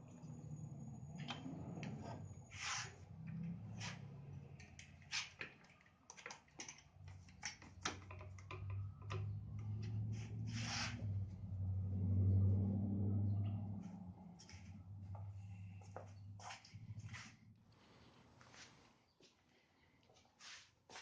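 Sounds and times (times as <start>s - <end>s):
clamps and wood clicking and knocking: 4.6s - 9.6s
low hum: 8.4s - 18.5s.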